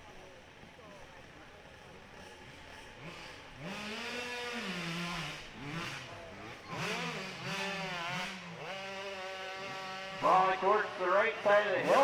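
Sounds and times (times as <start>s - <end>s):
dirt bike engine revving: 2.4s - 12.0s.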